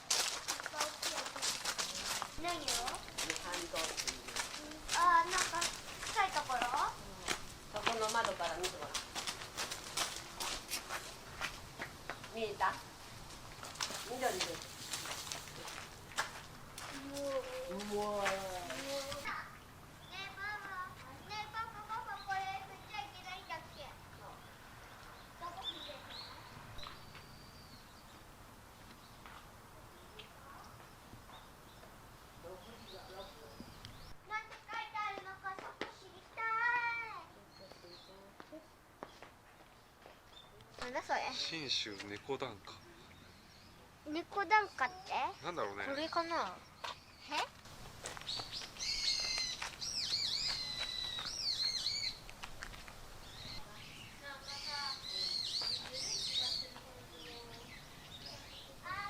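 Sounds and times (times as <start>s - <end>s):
small birds chirping: 0.0s - 59.0s
bird singing whistled notes: 48.3s - 52.2s, 53.2s - 58.7s.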